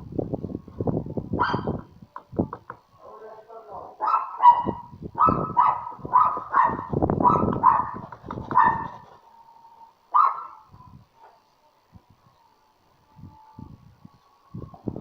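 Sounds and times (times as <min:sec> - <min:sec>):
dog barking: 0:01.4 - 0:01.8, 0:04.0 - 0:09.0, 0:10.1 - 0:11.4.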